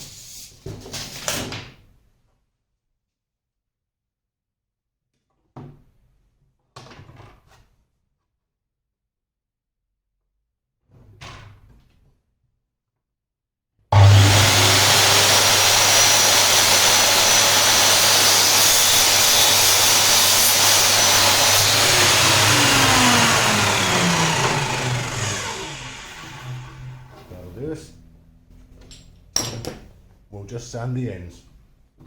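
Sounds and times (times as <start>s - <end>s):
electric mitre saw cutting wood: 13.9s - 27.7s.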